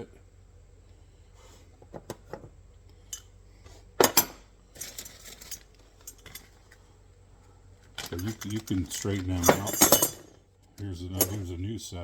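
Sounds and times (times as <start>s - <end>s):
light metal rattling clinks: 8.0s - 10.4s
metal clanks: 8.0s - 10.4s.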